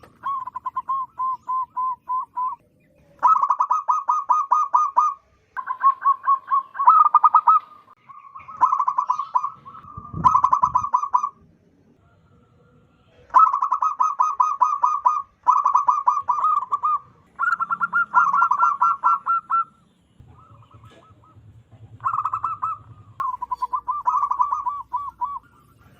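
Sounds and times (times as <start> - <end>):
dove cooing in rapid trains: 0.0 - 25.9.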